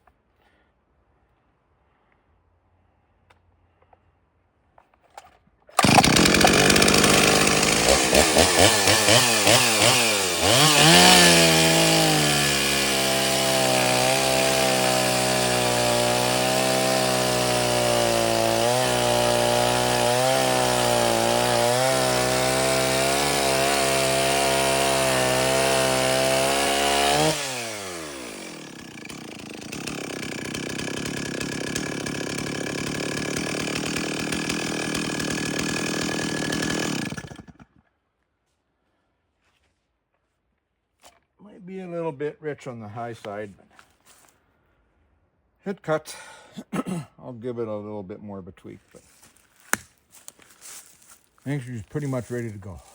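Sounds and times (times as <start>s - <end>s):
chainsaw cutting wood: 5.1s - 37.9s, 49.1s - 52.9s.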